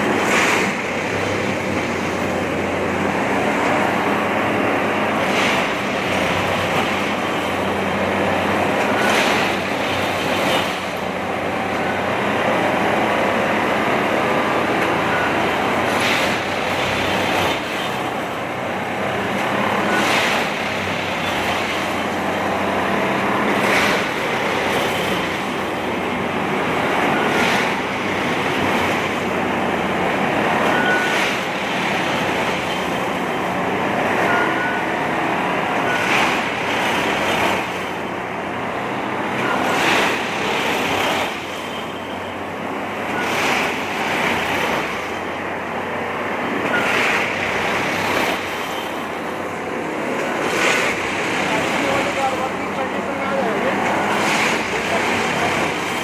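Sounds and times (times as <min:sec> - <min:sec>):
heavy machinery engine hum: 0:00.0 - 0:56.0.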